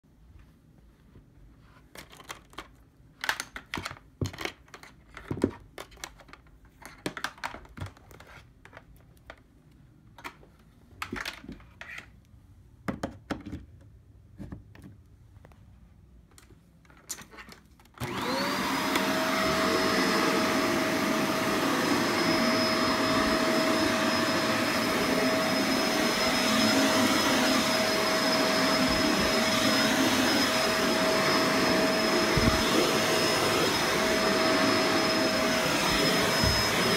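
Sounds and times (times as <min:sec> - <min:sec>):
vacuum cleaner running: 0:18.0 - 0:36.9.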